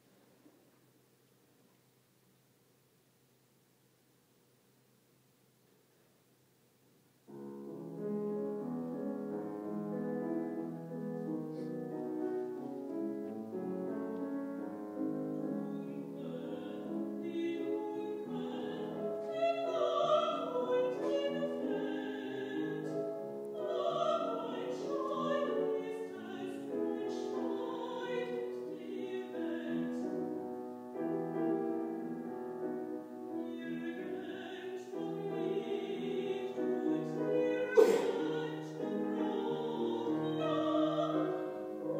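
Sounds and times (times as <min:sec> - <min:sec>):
piano playing: 0:07.3 - 0:41.9
woman singing classical with vibrato: 0:14.9 - 0:41.9.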